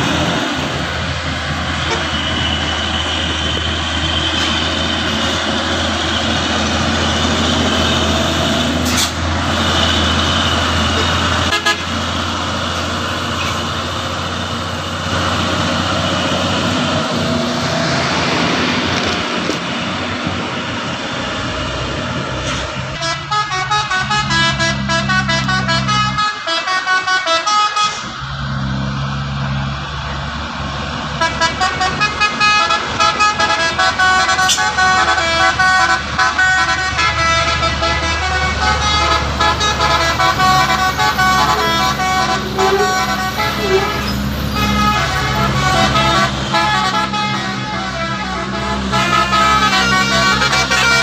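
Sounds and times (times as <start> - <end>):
heavy truck engine running: 0.0 - 51.0
road noise: 0.0 - 51.0
horn toots: 8.8 - 12.0, 22.5 - 28.2, 31.2 - 51.0.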